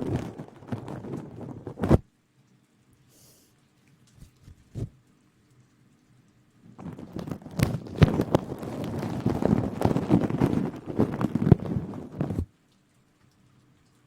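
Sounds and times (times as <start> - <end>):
close rustling and crackling: 0.0 - 2.1, 6.6 - 12.5.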